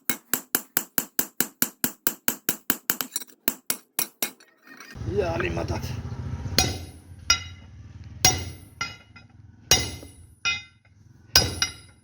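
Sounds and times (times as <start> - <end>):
hammer striking metal on anvil: 6.5 - 12.0.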